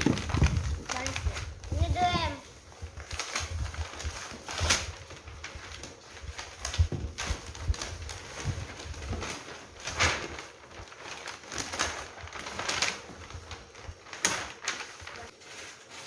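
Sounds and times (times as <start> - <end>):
clicks and knocks of packaging: 5.8 - 15.3.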